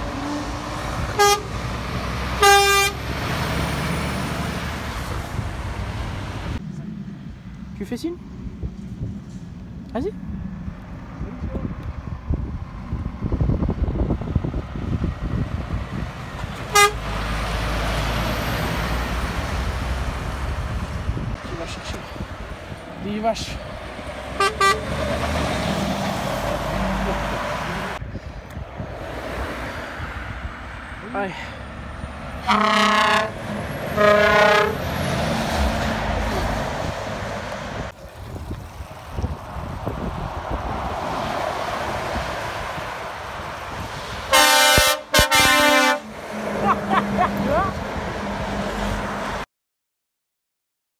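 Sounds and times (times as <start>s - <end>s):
truck engine and tyres passing: 0.0s - 49.5s
truck horn blast: 1.1s - 1.6s, 2.4s - 3.1s, 16.7s - 17.2s, 24.4s - 25.1s, 32.4s - 34.9s, 44.3s - 46.2s.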